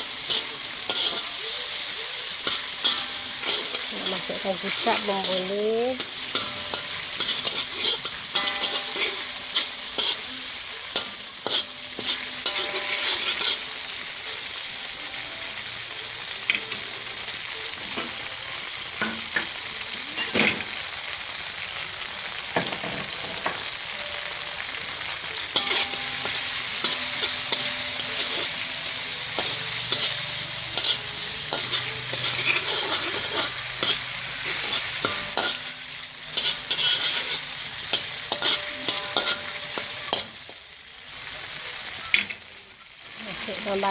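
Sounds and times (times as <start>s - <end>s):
utensil scraping pan: 0.0s - 1.6s, 2.4s - 10.3s, 25.6s - 40.4s
shrimp sizzling in oil: 0.0s - 43.9s.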